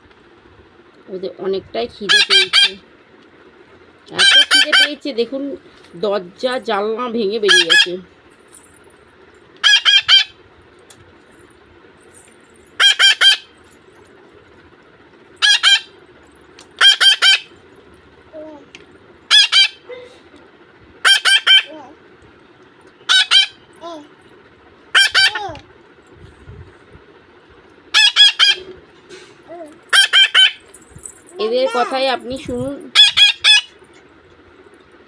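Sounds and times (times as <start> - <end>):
parakeet chicks squawking: 2.0 - 2.8, 4.1 - 5.0, 7.4 - 8.0, 9.6 - 10.4, 12.8 - 13.6, 15.4 - 16.0, 16.8 - 17.6, 19.3 - 19.9, 21.0 - 21.7, 23.1 - 23.7, 24.9 - 25.6, 27.9 - 28.8, 29.9 - 30.7, 32.9 - 33.8.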